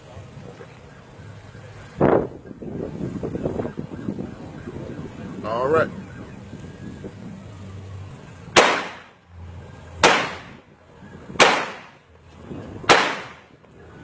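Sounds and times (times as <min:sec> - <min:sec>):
revolver shots echoing: 0:08.6 - 0:09.1, 0:10.0 - 0:10.6, 0:11.4 - 0:12.0, 0:12.9 - 0:13.4.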